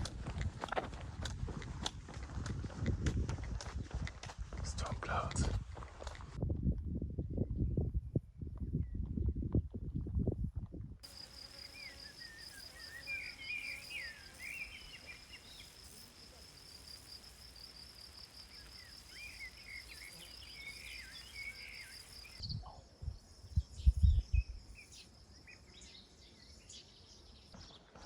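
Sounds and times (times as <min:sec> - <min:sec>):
insect pulsing trill: 0:11.0 - 0:22.4
bird chirps: 0:11.1 - 0:22.7.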